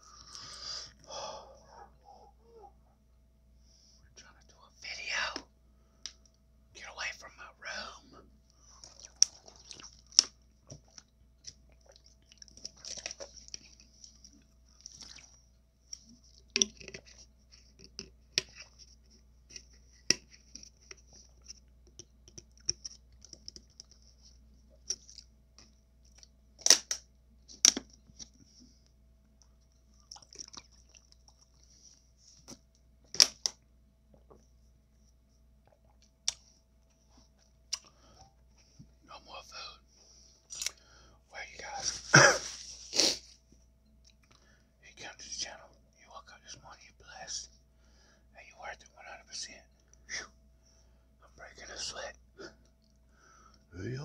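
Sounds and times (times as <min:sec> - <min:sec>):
chewing taco: 0:08.7 - 0:15.4, 0:29.4 - 0:31.7
sharp crunchy snaps: 0:24.8 - 0:28.4, 0:35.6 - 0:36.6, 0:37.7 - 0:38.1.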